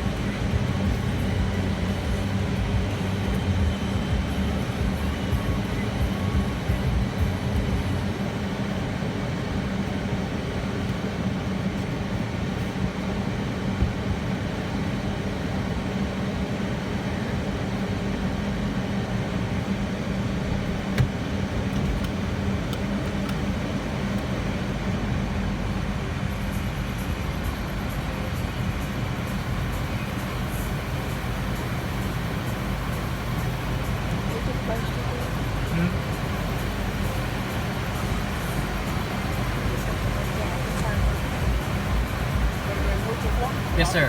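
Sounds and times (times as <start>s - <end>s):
muffled car wash rumble: 0.0s - 44.0s
low hum: 23.2s - 44.0s.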